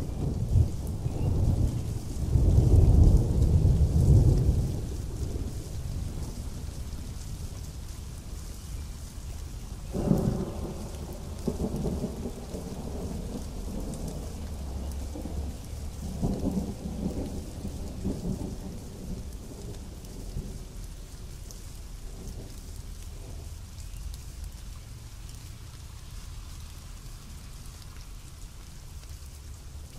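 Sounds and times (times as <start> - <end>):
rolling thunder: 0.0 - 7.4, 9.9 - 20.8
pouring rain: 0.0 - 29.9.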